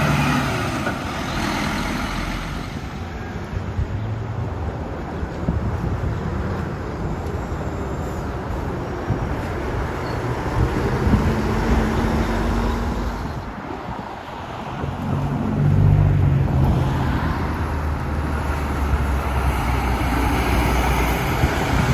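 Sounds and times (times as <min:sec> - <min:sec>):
heavy truck driving past: 0:00.0 - 0:03.9, 0:15.2 - 0:21.9.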